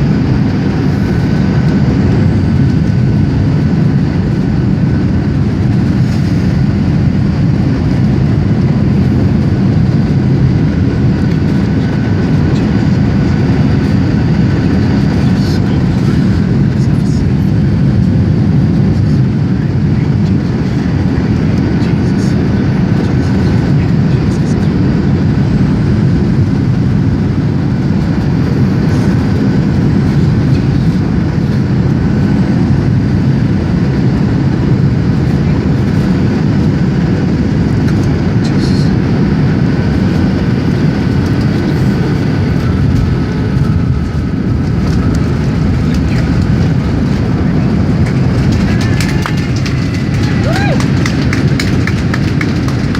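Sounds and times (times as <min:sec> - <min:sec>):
faint steady whine: 0:00.0 - 0:52.9
jet engines and airflow rumble: 0:00.0 - 0:52.9.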